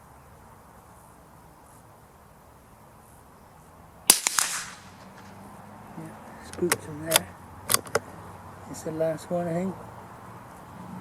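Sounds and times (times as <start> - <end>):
rifle shot with echo: 4.1 - 5.5.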